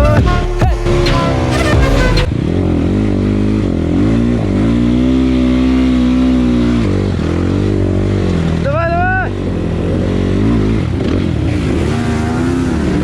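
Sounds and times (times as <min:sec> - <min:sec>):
rapping over music: 0:00.0 - 0:02.3
motorcycle engine revving: 0:00.0 - 0:13.0.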